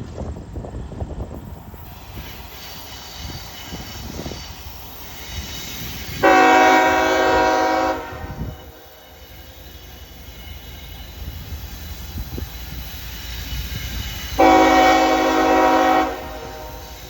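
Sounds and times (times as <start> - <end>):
diesel locomotive rumbling: 0.0 - 17.0
locomotive horn blast: 6.1 - 9.1, 14.4 - 17.0.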